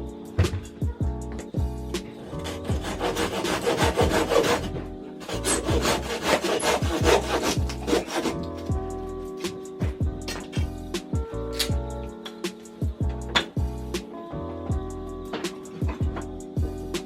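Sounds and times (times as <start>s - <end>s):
background music with kick drum: 0.0s - 17.0s
wood rasping and scraping: 2.0s - 9.5s.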